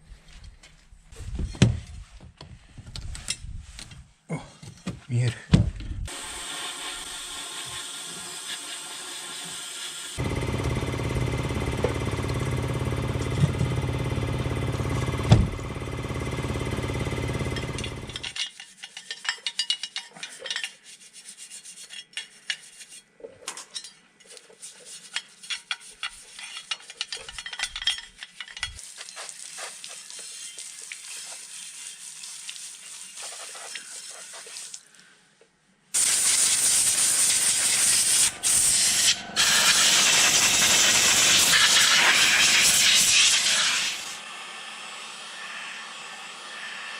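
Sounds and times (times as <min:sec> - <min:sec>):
spray painting hiss: 0:28.8 - 0:34.8, 0:36.0 - 0:46.9.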